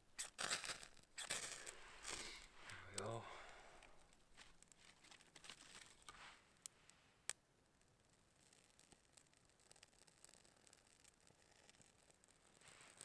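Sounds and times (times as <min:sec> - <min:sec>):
bark shavings crackling: 0:00.0 - 0:06.3.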